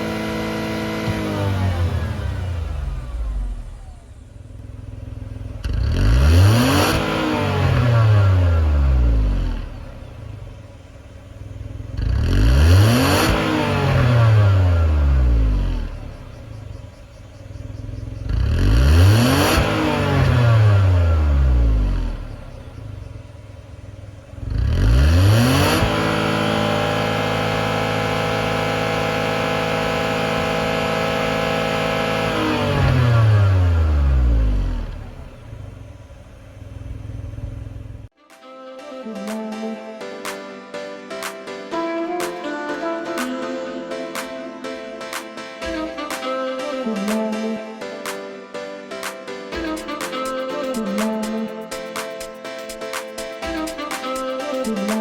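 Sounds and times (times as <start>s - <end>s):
car engine revving: 0.0s - 38.2s.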